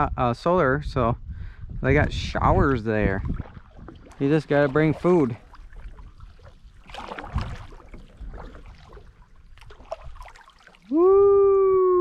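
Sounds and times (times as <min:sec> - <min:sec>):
paddle splashing water: 0:03.0 - 0:11.2
water dripping off paddle: 0:03.4 - 0:10.9
person shouting woo: 0:10.9 - 0:12.0.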